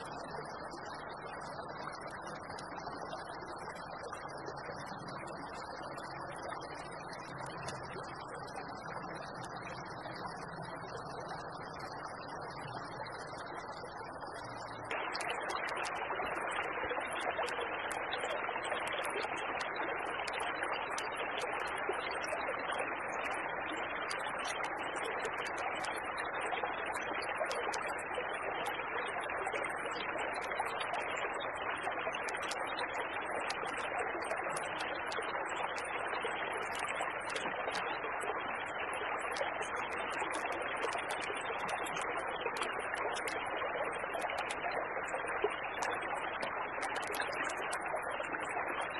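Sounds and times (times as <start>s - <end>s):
creek water running: 0.0s - 48.9s
faint high ticks: 1.4s - 8.6s.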